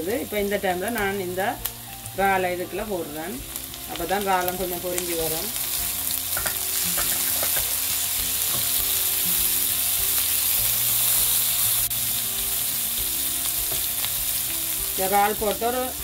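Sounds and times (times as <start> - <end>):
onions and prawns sizzling in oil: 0.0 - 16.0
spatula stirring in pan: 5.6 - 11.4.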